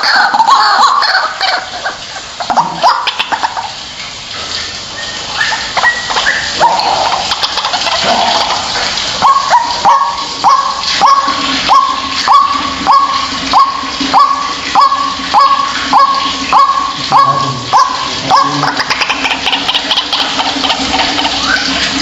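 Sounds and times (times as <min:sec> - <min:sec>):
waterhen calling: 0:00.0 - 0:22.0.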